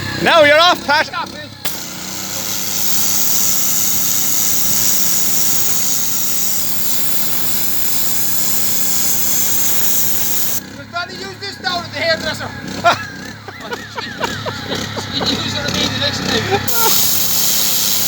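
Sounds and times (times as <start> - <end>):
pressure washer motor humming: 0.0 - 18.0
water jet hissing on stone: 1.7 - 10.6, 16.7 - 18.0.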